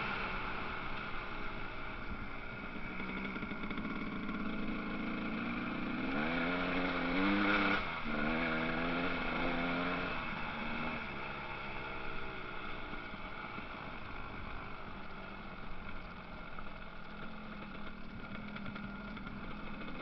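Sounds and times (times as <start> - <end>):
motorcycle engines running: 0.0 - 20.0
motorcycle revving: 0.0 - 20.0.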